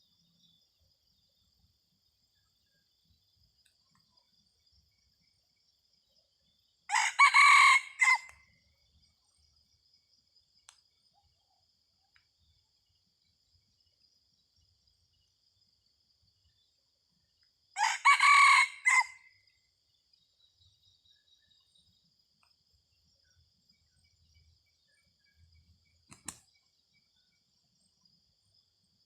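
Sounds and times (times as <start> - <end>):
rooster crowing: 6.9 - 8.4, 17.8 - 19.3.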